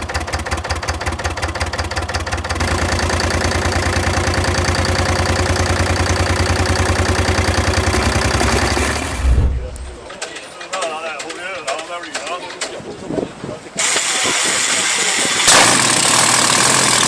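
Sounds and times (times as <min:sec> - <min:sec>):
stationary diesel engine pulsing: 0:00.0 - 0:10.1.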